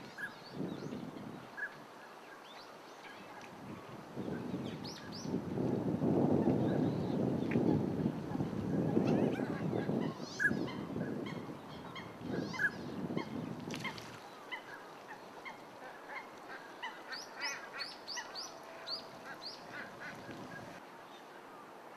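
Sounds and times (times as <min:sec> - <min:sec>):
ducks calling: 0:10.4 - 0:20.8.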